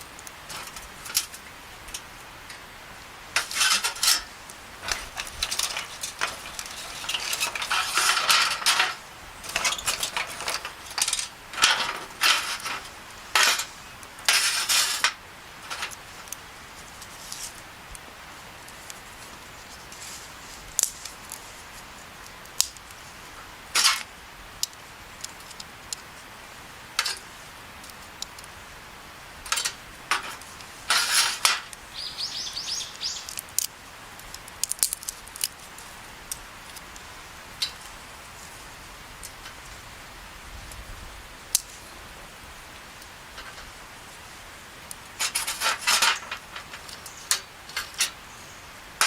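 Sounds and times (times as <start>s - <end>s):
bird chirping: 31.8s - 33.4s.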